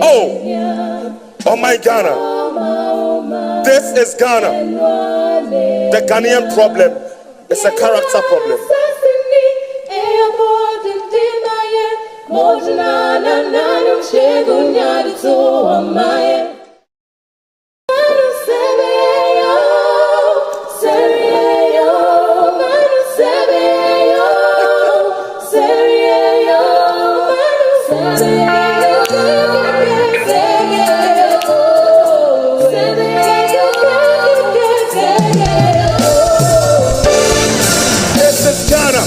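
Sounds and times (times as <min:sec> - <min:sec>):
group singing a cappella: 0:00.0 - 0:16.9, 0:17.9 - 0:39.0.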